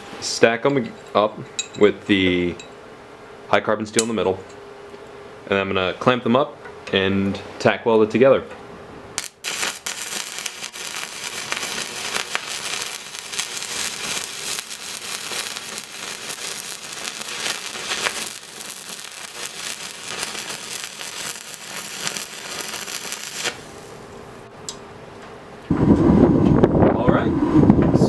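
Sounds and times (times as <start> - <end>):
electric arc welder crackling: 9.2 - 24.5.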